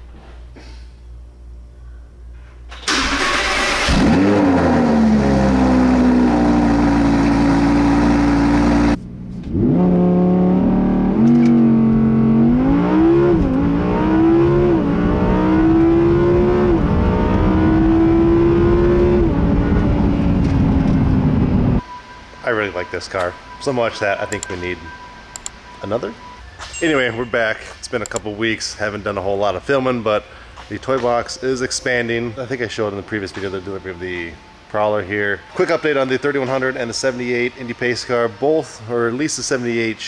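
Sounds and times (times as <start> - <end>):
car engine starting and idling: 2.7 - 22.0
engine revving: 2.9 - 21.8.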